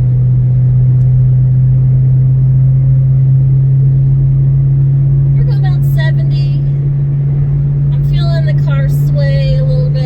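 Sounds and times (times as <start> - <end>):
engine drone from inside car: 0.0 - 10.0
road noise: 0.0 - 10.0.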